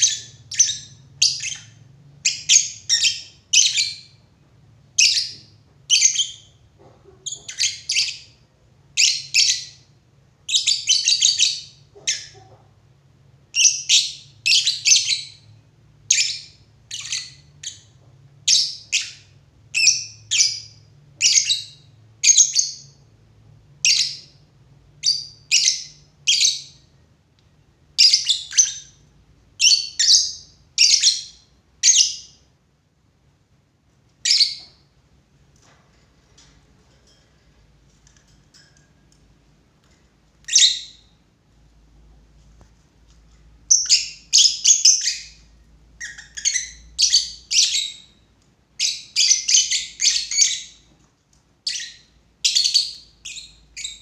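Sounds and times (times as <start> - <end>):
bird high-pitched chirps: 0.0 - 4.2, 5.0 - 8.4, 10.5 - 12.7, 13.5 - 15.5, 16.1 - 23.0, 23.8 - 24.4, 25.0 - 26.9, 28.0 - 29.0, 29.6 - 32.5, 34.2 - 34.9, 40.4 - 41.2, 43.6 - 48.2, 48.8 - 50.9, 51.6 - 54.0.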